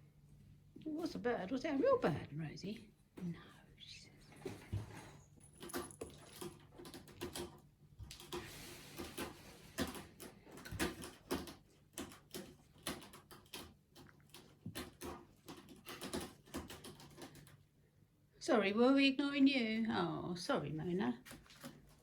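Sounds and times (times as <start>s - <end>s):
cat scratching claws: 5.6s - 17.6s, 21.2s - 22.0s.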